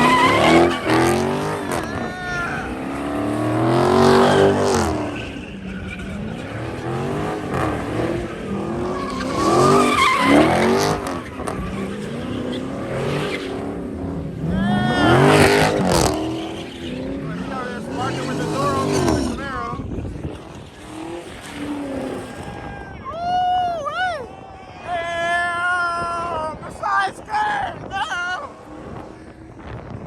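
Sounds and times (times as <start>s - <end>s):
car engine revving: 0.0s - 23.0s, 27.8s - 30.0s
tires squealing: 0.0s - 30.0s.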